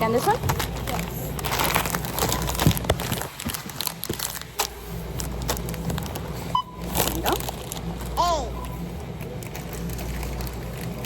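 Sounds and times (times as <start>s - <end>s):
plastic bags rustling: 0.0s - 8.2s
low store hum: 0.0s - 11.0s.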